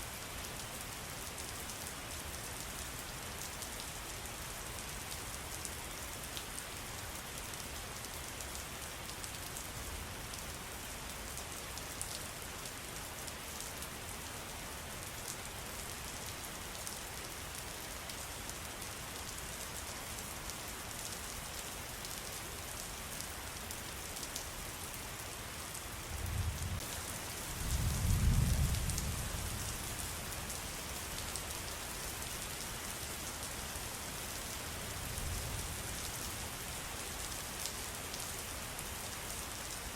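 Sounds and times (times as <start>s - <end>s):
rain pattering: 15.1s - 39.9s.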